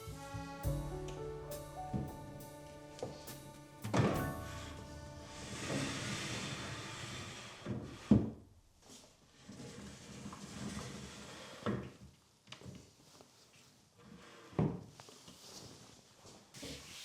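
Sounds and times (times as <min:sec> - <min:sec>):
rustling and shuffling: 0:14.9 - 0:17.0.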